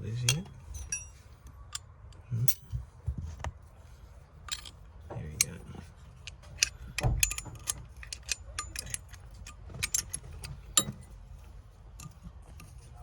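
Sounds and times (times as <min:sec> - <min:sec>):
metal hand tools clinking: 0:00.3 - 0:01.2, 0:06.2 - 0:11.0.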